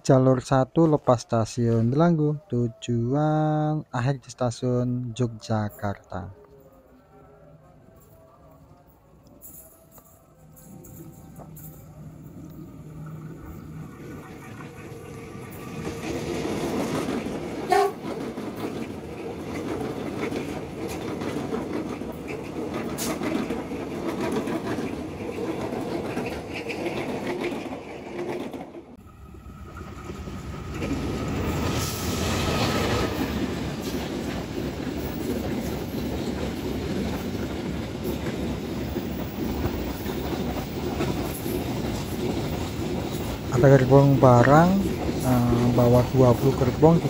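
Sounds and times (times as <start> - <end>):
goods train rumbling past: 9.4 - 47.0
train wheels rumbling and clacking: 9.5 - 47.0.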